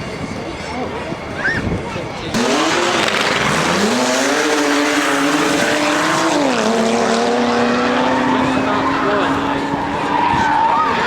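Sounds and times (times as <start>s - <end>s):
car engine at high revs: 2.3s - 11.0s.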